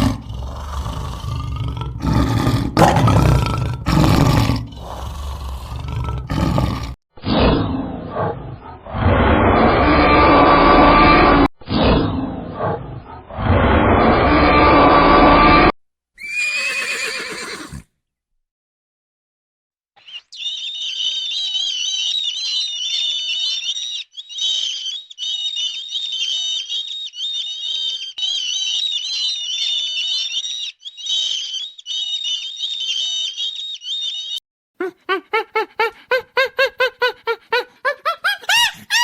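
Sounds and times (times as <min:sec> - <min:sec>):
small birds chirping: 0:20.0 - 0:35.4.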